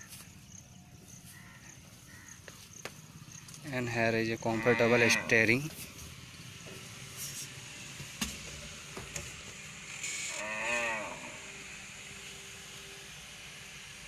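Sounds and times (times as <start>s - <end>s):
cow mooing: 4.5s - 5.5s, 10.3s - 11.5s.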